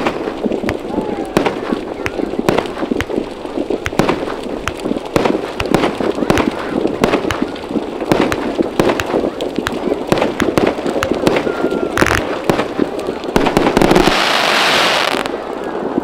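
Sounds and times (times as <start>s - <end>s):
background murmur: 0.0s - 16.0s
fireworks cracking and popping: 0.0s - 16.0s.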